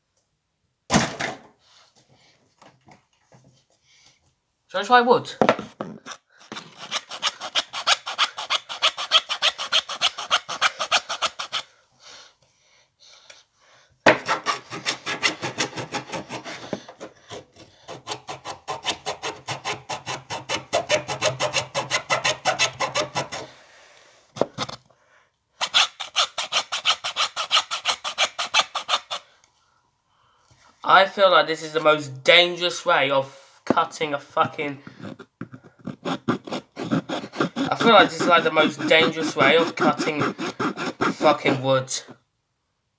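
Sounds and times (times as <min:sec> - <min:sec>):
hacksaw cutting wood: 0:06.1 - 0:11.7, 0:14.1 - 0:23.5, 0:25.6 - 0:29.2, 0:34.4 - 0:42.1.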